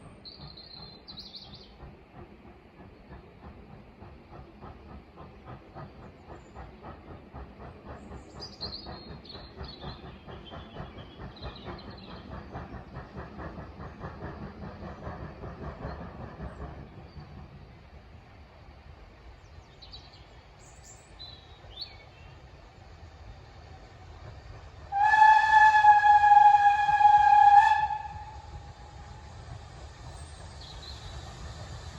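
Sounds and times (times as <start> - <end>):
train wheels clicking over rails: 0.0 - 18.3, 21.1 - 31.9.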